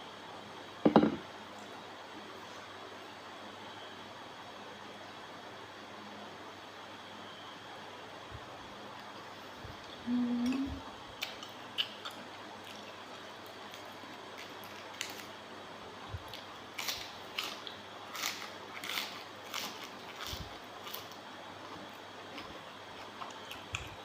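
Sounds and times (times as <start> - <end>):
lip smacks and clicks: 11.2 - 12.9.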